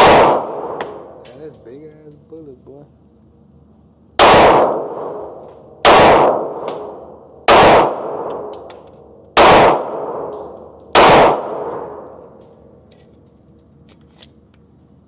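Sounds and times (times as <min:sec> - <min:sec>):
handgun shots with ringing echo: 0:00.0 - 0:01.3, 0:04.2 - 0:12.6.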